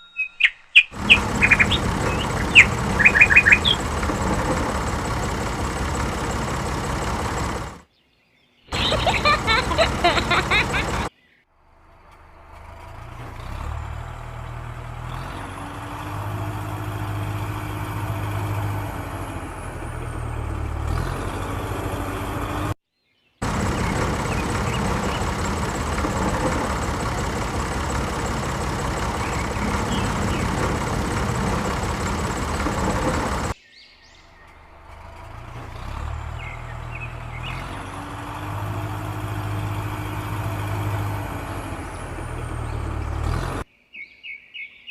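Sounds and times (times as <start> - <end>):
vehicle engine running: 0.9 - 7.8, 8.7 - 22.8, 23.4 - 43.7.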